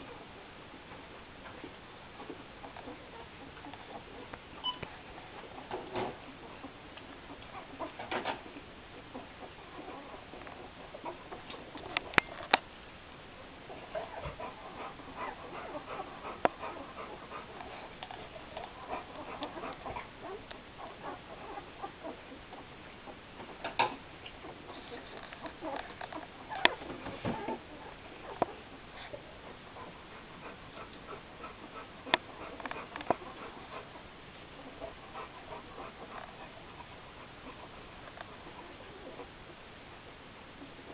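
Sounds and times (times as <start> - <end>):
puppies squeaking and grunting: 2.2 - 12.6, 13.5 - 39.6.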